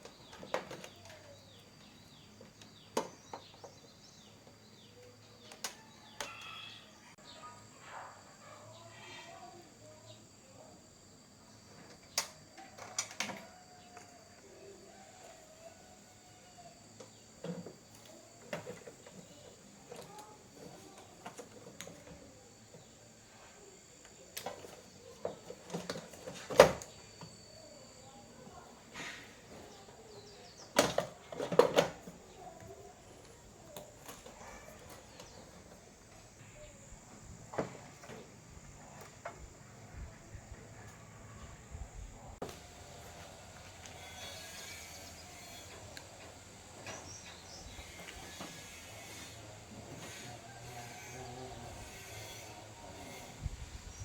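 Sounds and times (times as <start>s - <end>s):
faint high whine: 4.1s - 30.7s.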